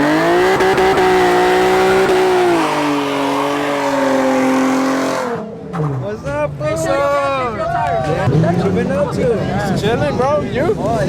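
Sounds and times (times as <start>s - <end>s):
car engine revving hard: 0.0s - 6.0s.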